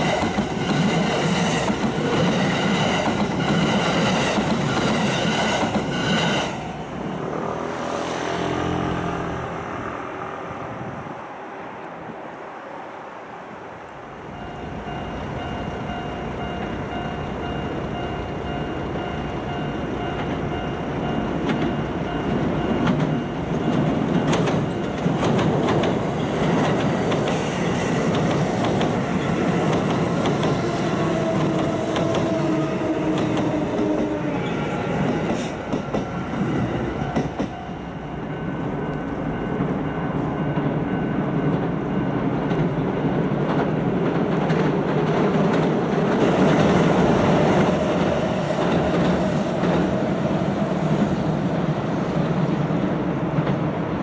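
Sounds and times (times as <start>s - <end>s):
train rumbling over steel bridge: 0.0s - 54.0s
wheels clicking over rail joints: 20.1s - 34.3s, 41.5s - 50.2s.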